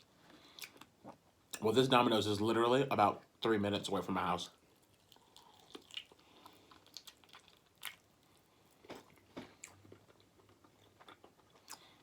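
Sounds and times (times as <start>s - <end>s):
chewing food: 4.7s - 12.0s.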